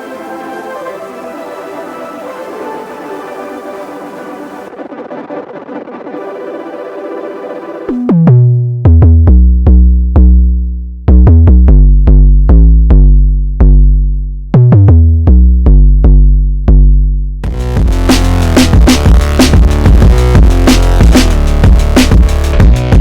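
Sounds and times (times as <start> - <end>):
punchy bass synth riff: 4.6 - 23.0
gritty electronic drum rhythm: 17.4 - 23.0.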